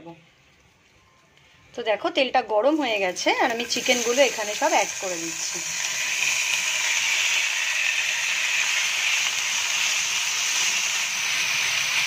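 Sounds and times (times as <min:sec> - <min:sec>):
chicken sizzling in hot oil: 0:02.8 - 0:12.0.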